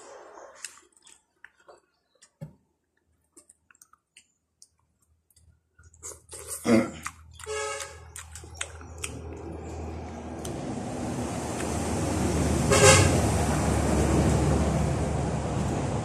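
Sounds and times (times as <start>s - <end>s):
chewing and mouth clicks: 0.5s - 10.6s, 11.4s - 11.9s.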